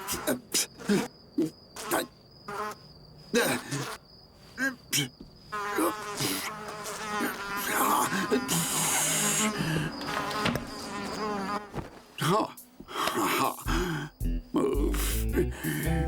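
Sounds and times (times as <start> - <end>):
cartoon fly buzzing: 0.0 - 4.0, 5.5 - 12.8.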